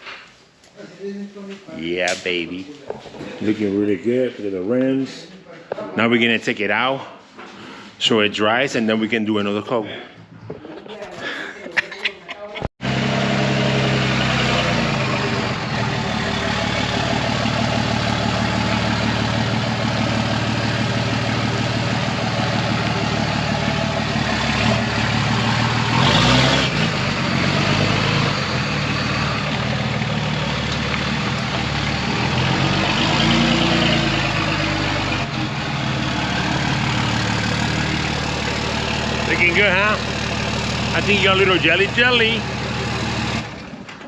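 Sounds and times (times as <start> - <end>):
truck engine idling: 12.8 - 44.0.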